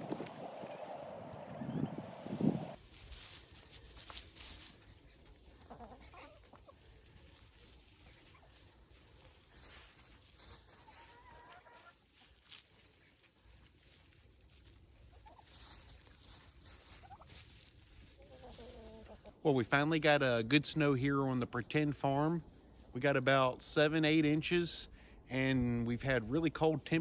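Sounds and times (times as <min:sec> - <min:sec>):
chickens clucking: 0:03.7 - 0:20.5.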